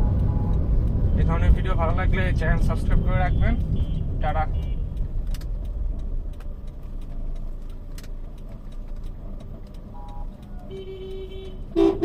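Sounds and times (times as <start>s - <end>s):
car road and engine rumble: 0.0s - 12.0s
vehicle horn: 10.0s - 12.0s.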